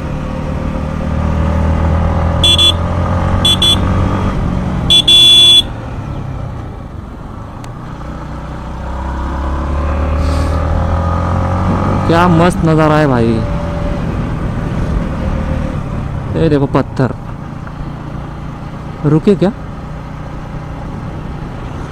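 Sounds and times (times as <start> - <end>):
motorcycle horn toots: 2.4 - 3.9, 4.9 - 5.8.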